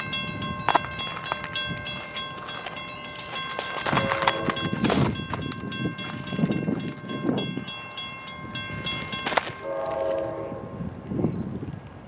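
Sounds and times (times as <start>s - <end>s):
diesel train approaching: 0.0s - 12.0s
train horn blast: 3.9s - 4.8s, 9.6s - 10.9s.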